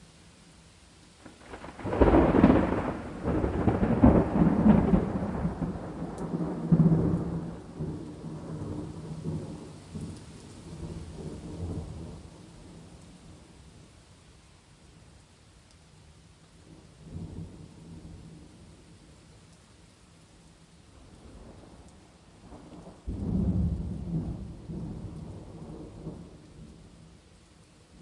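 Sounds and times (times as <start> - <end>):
faint steady rain: 0.0 - 28.0
rolling thunder: 1.3 - 12.8, 22.4 - 26.9.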